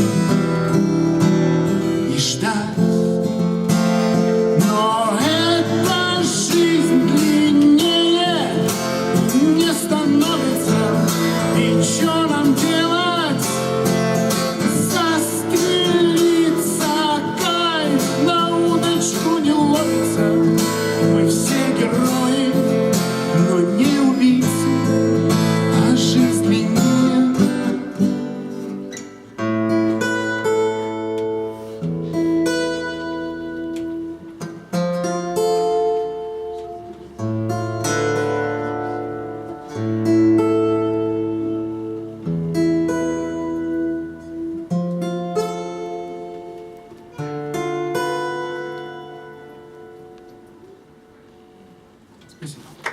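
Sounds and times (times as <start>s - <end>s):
acoustic guitar strumming: 0.0s - 52.4s
person singing: 4.6s - 28.2s.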